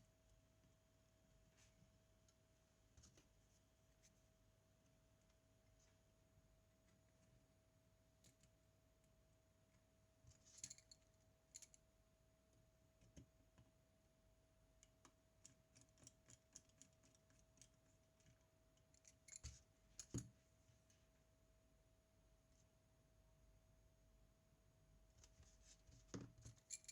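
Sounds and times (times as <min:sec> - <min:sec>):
small tools clicking and tapping: 0:14.8 - 0:20.3.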